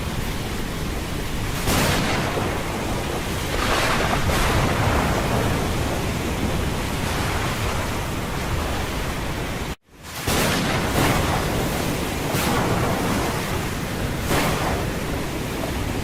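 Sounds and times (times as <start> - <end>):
storm wind and heavy seas: 0.0 - 16.0
wind buffeting microphone: 0.0 - 16.0.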